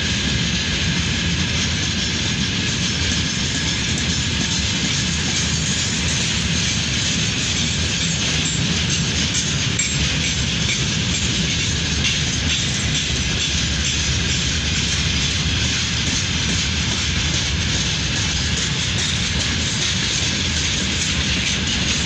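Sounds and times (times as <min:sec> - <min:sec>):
freight train rolling on rails: 0:00.0 - 0:22.0.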